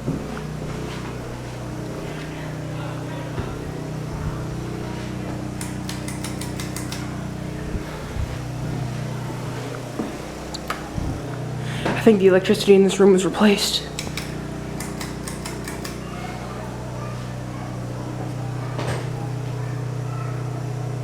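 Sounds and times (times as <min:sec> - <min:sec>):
ceiling fan motor hum: 0:00.0 - 0:21.0
sharp clicks: 0:05.6 - 0:07.2, 0:13.9 - 0:16.0.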